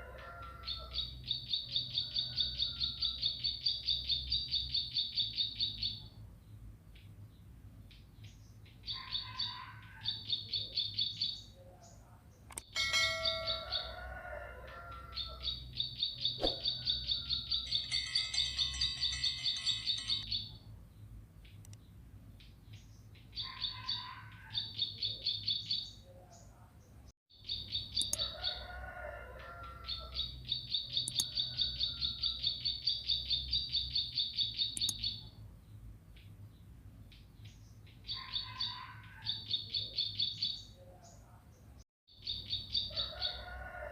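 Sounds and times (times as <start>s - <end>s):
bird high chirps: 15.2s - 20.6s, 27.4s - 28.4s, 29.9s - 35.3s.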